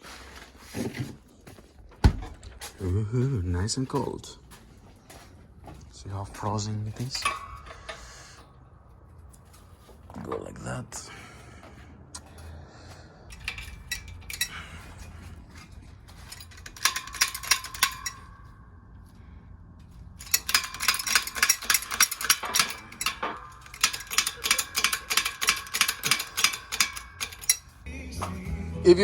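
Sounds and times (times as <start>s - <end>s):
hammer striking metal: 20.2s - 27.8s.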